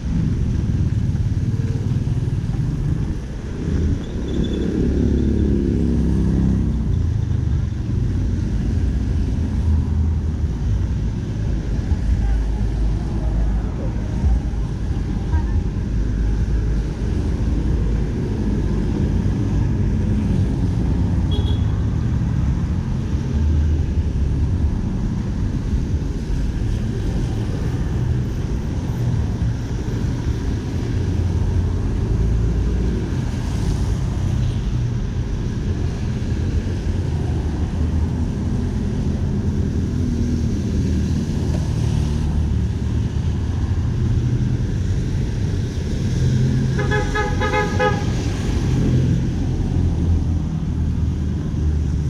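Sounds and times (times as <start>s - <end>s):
street traffic rumble: 0.0s - 52.0s.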